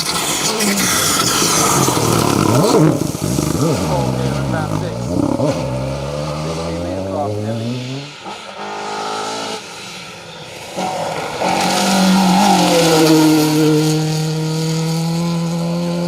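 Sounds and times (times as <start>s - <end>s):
tyre noise hiss: 0.0s - 11.6s
rally car engine passing: 0.0s - 16.0s.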